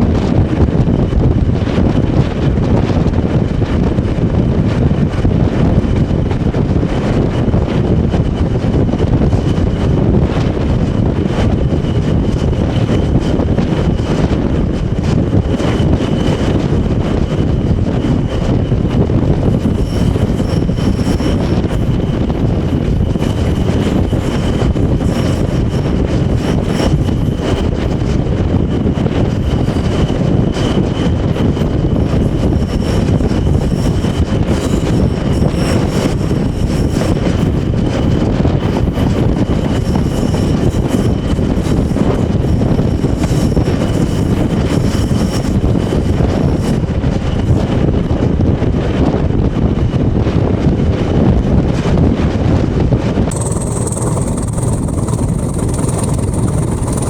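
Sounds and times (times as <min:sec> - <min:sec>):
diesel locomotive engine under load: 0:05.1 - 0:48.4, 0:53.3 - 0:57.0
constant high whistle: 0:53.3 - 0:57.0
wheels clicking: 0:53.3 - 0:57.0.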